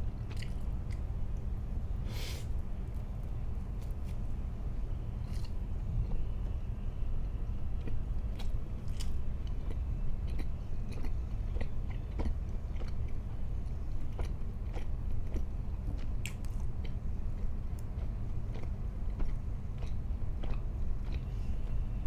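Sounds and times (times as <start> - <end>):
chewing and biting food: 0.0 - 1.6, 7.6 - 22.0
steady low hum: 0.0 - 22.0.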